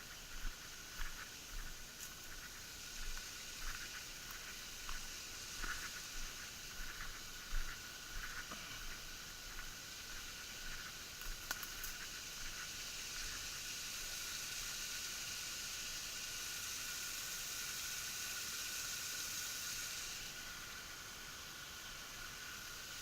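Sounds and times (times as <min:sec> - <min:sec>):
small waterfall rushing: 0:00.1 - 0:23.0.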